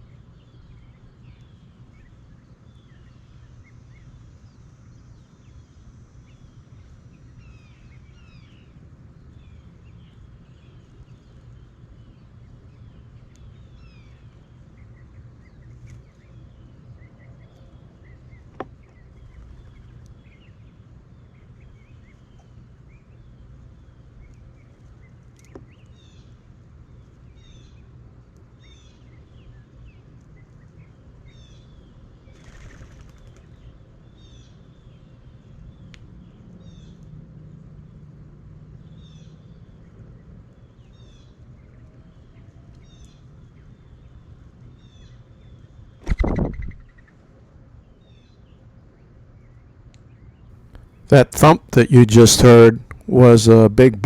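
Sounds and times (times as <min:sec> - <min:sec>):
small birds chirping: 0:00.0 - 0:37.1, 0:38.8 - 0:51.0
wings fluttering: 0:32.3 - 0:33.6, 0:46.0 - 0:47.0
bird landing thump: 0:46.0 - 0:46.8.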